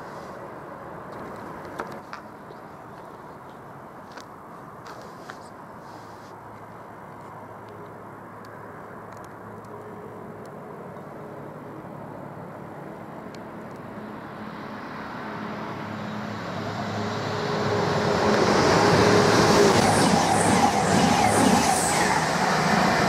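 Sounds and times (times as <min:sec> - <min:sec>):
train rushing past: 0:14.2 - 0:23.0.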